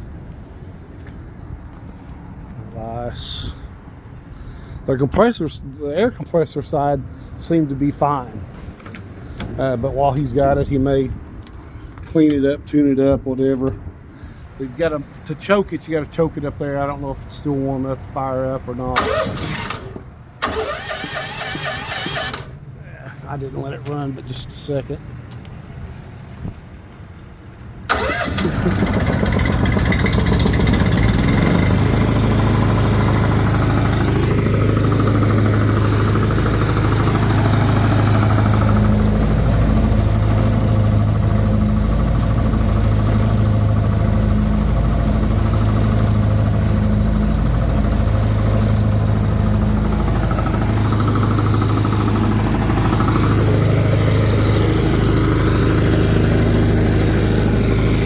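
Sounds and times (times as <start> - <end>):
small gasoline engine running: 19.0 - 22.5, 27.9 - 58.0.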